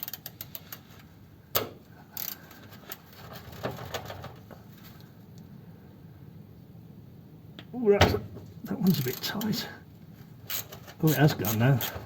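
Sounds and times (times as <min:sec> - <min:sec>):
ratchet spanner clicking: 0:00.0 - 0:00.8, 0:02.2 - 0:03.0, 0:10.4 - 0:12.0.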